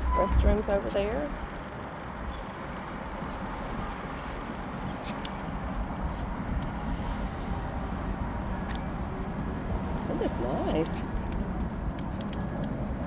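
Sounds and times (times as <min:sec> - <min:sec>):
bicycle tyre noise: 0:00.0 - 0:07.3.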